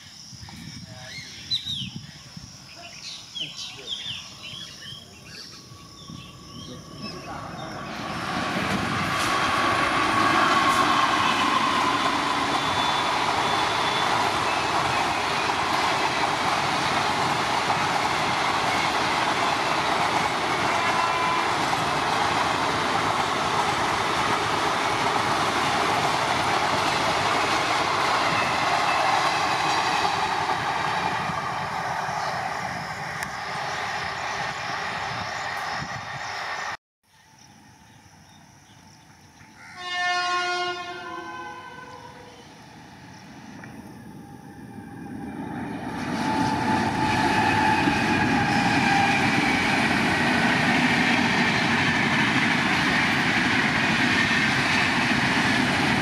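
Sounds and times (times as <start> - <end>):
train wheels rushing on rail: 5.4 - 36.8, 42.6 - 56.0.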